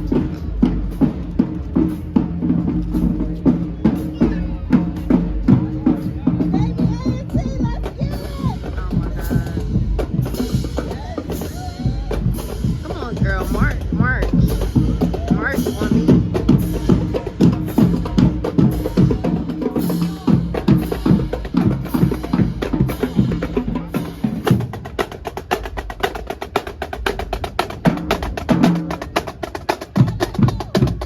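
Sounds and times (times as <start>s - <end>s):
drum beat with bass: 0.0s - 31.0s
fast ticking percussion: 4.8s - 31.0s.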